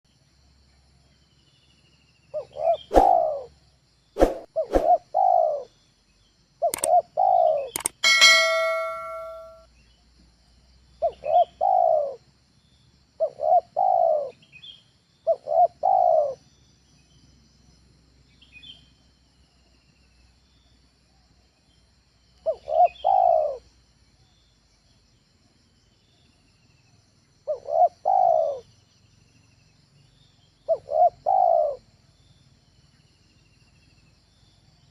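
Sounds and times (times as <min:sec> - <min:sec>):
dove cooing: 0:02.4 - 0:03.5, 0:04.6 - 0:05.7, 0:06.6 - 0:07.8, 0:11.0 - 0:12.2, 0:13.2 - 0:14.4, 0:15.3 - 0:16.4, 0:22.5 - 0:23.6, 0:27.5 - 0:28.6, 0:30.7 - 0:31.8
sharp clicks: 0:06.7 - 0:07.0, 0:07.7 - 0:08.1
brief metallic ring: 0:07.8 - 0:09.6.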